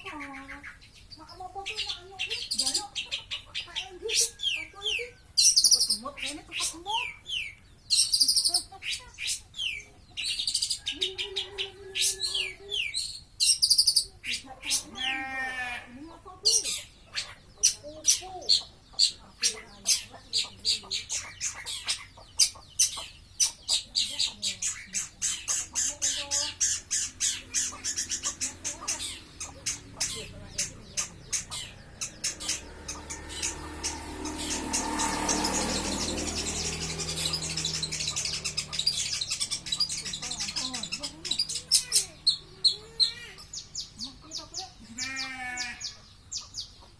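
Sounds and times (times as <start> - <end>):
shrike singing: 16.2 - 46.8
low drone: 26.8 - 41.2.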